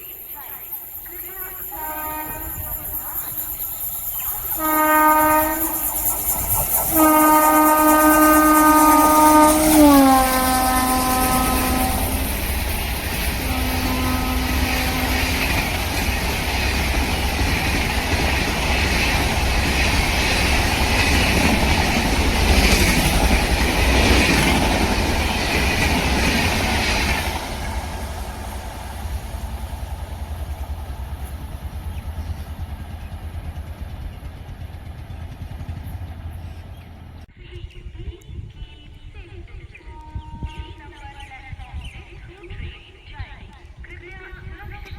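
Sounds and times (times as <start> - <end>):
train wheels rattling: 0.0 - 37.2
train passing at speed: 0.0 - 37.3
train horn: 1.4 - 3.2, 4.5 - 6.1, 6.7 - 16.8, 39.8 - 40.9.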